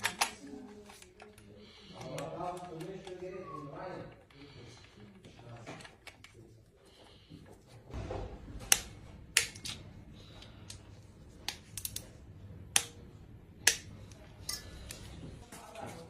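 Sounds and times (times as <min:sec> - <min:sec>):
hard objects clicking and clinking: 0:11.4 - 0:12.1, 0:13.6 - 0:15.2.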